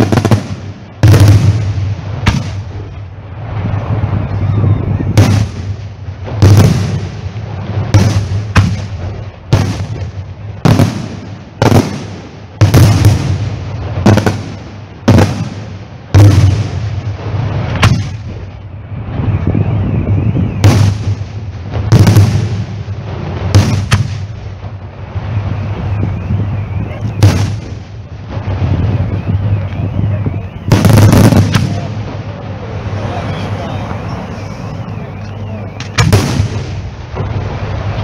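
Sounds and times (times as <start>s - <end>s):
fireworks bangs: 0.0s - 38.0s
steady low rumble: 15.8s - 38.0s.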